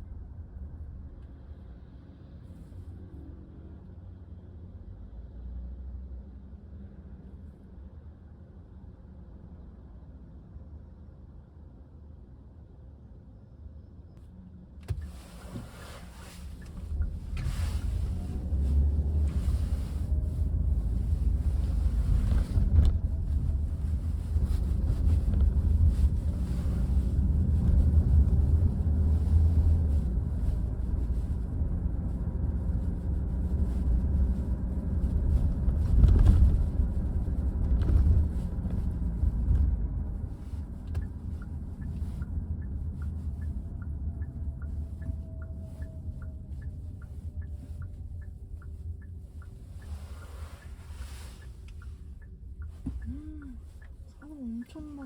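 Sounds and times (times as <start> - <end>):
road and wind noise from car: 0.0 - 55.0.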